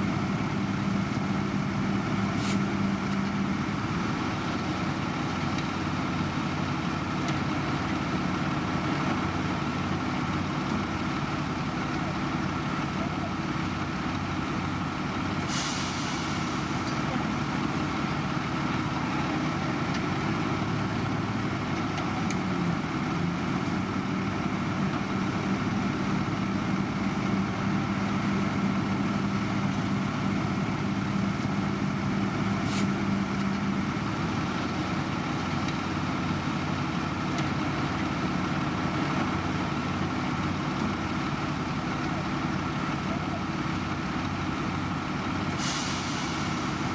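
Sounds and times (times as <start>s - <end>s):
diesel construction machinery running: 0.0s - 46.9s
air brake hiss: 15.4s - 16.8s, 45.6s - 46.9s.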